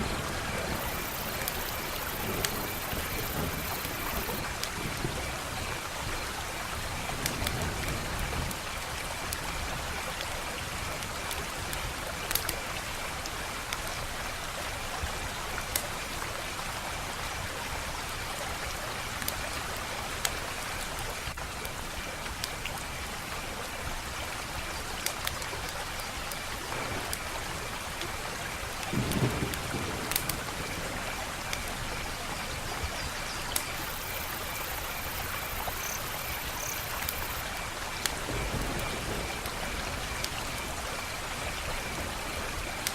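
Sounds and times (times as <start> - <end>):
wood fire crackling: 0.0 - 4.8, 7.2 - 12.6, 25.0 - 42.9.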